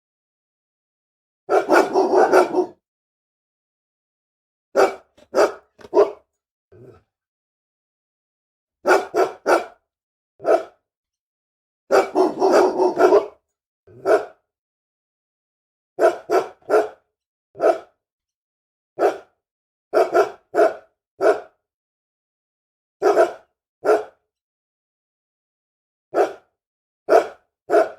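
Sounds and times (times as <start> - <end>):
dog barking angrily: 1.5 - 2.8, 4.8 - 6.2, 8.9 - 9.8, 10.4 - 10.8, 11.9 - 14.4, 16.0 - 17.0, 17.6 - 17.9, 19.0 - 19.3, 20.0 - 21.5, 23.0 - 24.1, 26.2 - 26.4, 27.1 - 27.9.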